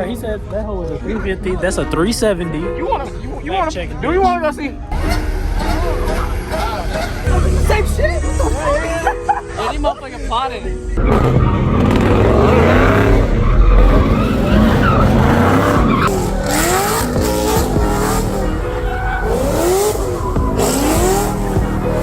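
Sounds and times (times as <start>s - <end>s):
car engine revving: 4.8s - 9.4s, 10.9s - 22.0s
tires squealing: 4.9s - 10.0s, 10.9s - 22.0s.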